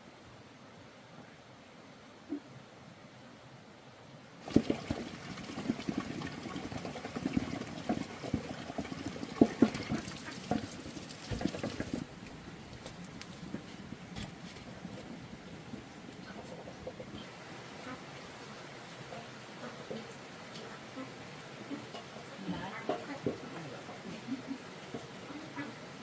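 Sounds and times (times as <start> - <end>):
knocks and clatter: 4.4 - 12.1, 21.9 - 24.2
water running and splashing: 4.4 - 26.0.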